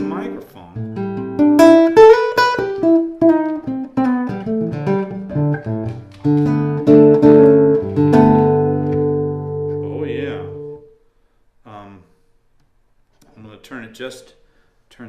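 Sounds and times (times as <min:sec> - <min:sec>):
nylon-string guitar playing: 0:00.0 - 0:11.0.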